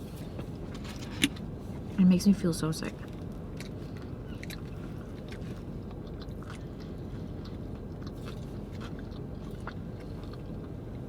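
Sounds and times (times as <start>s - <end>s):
steady low hum: 0.0s - 11.0s
person chewing food: 3.0s - 11.0s.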